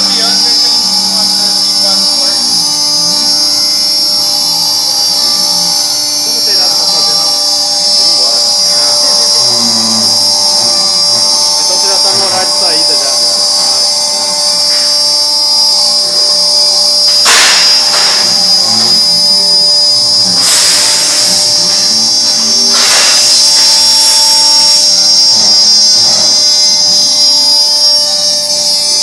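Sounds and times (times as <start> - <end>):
router spindle whine: 0.0 - 29.0
loud rushing noise: 17.1 - 18.6.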